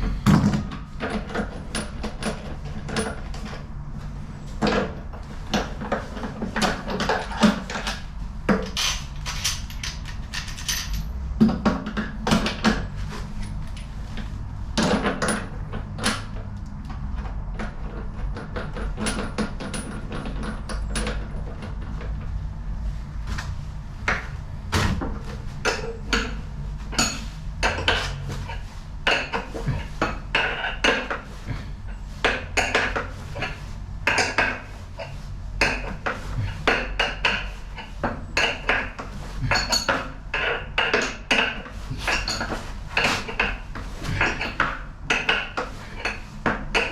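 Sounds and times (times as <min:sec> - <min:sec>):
metal tools clinking on metal: 0:06.6 - 0:11.2, 0:25.6 - 0:46.9.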